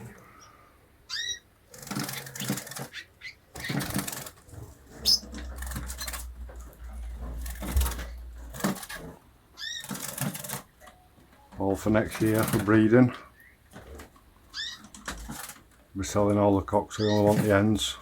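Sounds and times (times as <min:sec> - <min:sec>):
birds fluttering and rustling: 0:00.0 - 0:18.0
bird chirps: 0:00.3 - 0:01.5, 0:02.1 - 0:03.8, 0:05.0 - 0:06.3, 0:14.5 - 0:14.9.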